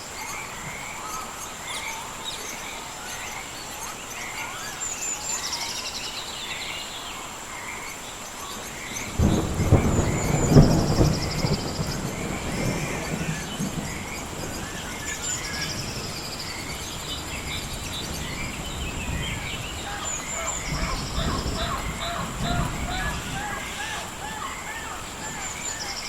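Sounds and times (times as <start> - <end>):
rain hissing: 0.0 - 26.0
songbirds chirping and trilling: 0.0 - 26.0
thunder rumbling: 9.0 - 26.0.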